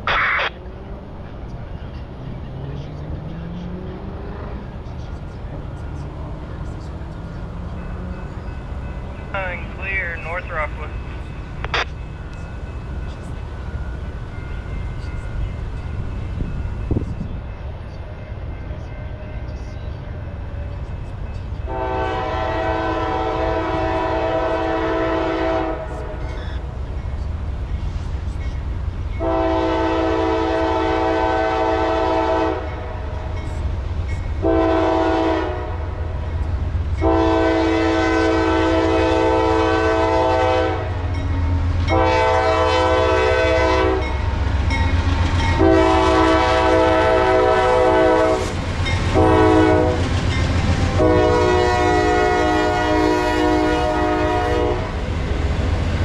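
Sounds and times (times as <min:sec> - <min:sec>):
locomotive rumble: 0:00.0 - 0:56.0
locomotive horn blasts: 0:21.6 - 0:26.3, 0:29.2 - 0:33.0, 0:34.4 - 0:36.0, 0:37.0 - 0:41.1, 0:41.9 - 0:44.2, 0:45.5 - 0:50.1, 0:50.9 - 0:55.0.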